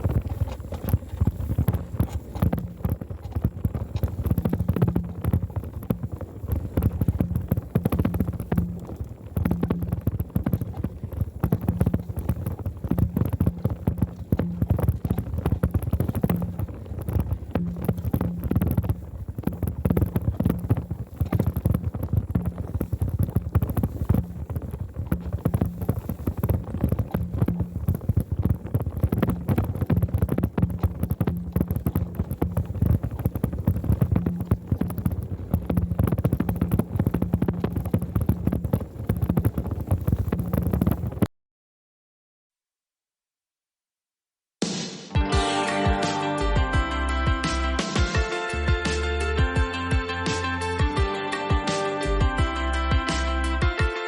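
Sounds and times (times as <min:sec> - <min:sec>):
bicycle rattling and knocking: 0:00.0 - 0:41.3
low rumble: 0:00.0 - 0:41.3.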